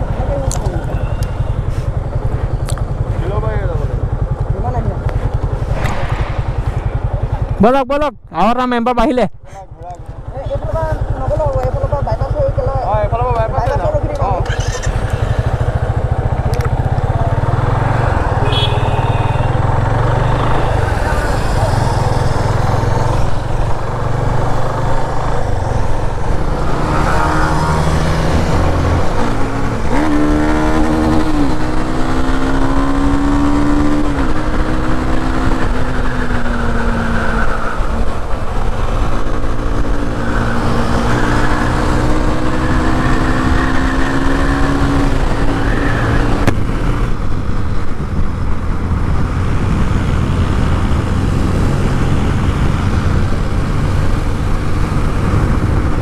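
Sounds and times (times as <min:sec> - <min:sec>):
motorcycle engine: 0:00.0 - 0:08.8, 0:09.8 - 0:56.0
wind rushing on microphone: 0:33.0 - 0:56.0.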